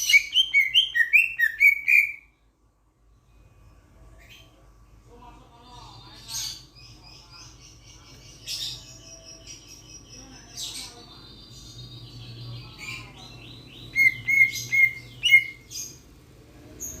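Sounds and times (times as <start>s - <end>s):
starling chirps and whistles: 0.0s - 2.3s, 13.7s - 16.0s.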